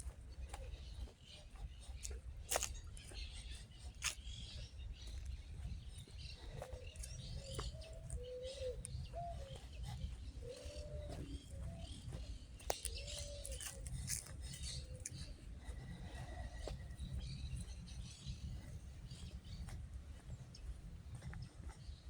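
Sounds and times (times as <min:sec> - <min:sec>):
small birds chirping: 0:00.0 - 0:22.0
pigeons cooing: 0:06.4 - 0:16.6.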